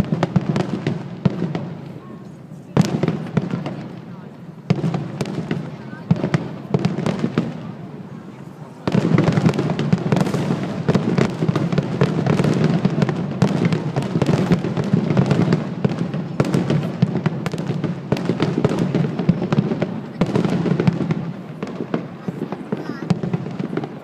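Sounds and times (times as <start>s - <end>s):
fireworks cracking: 0.0s - 24.0s.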